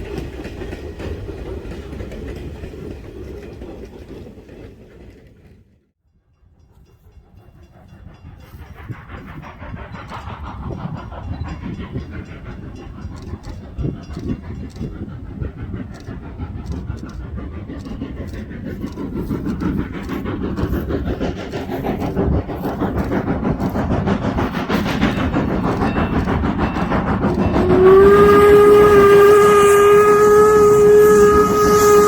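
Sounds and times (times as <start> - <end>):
steam locomotive chuffing: 0.0 - 32.0
steam whistle blast: 27.6 - 32.0.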